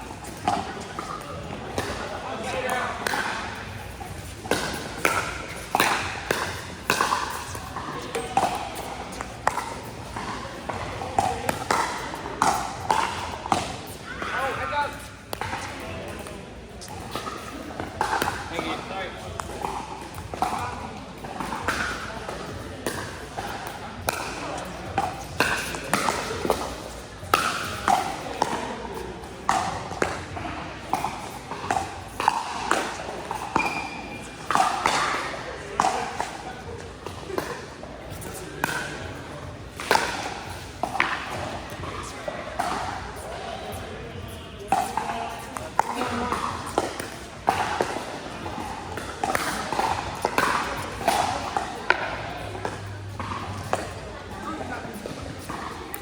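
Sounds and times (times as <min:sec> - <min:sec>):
faint voices: 0:00.0 - 0:56.0
ball bouncing on court: 0:00.3 - 0:28.7, 0:29.5 - 0:35.2, 0:37.0 - 0:56.0.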